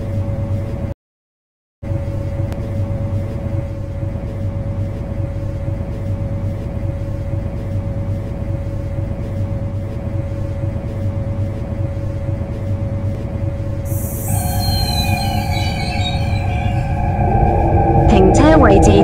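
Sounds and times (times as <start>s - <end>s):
train cab low rumble: 2.0s - 19.0s
steady mid-pitched tone: 13.9s - 19.0s.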